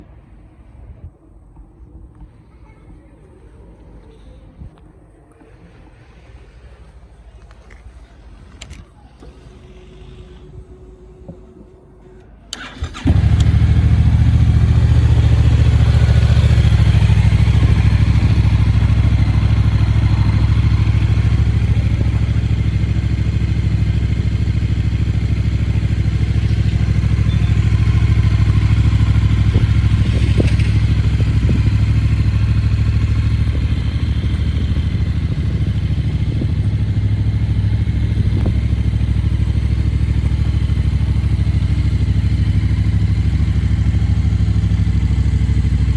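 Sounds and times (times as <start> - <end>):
motorcycle engine starting and idling: 12.5 - 45.9.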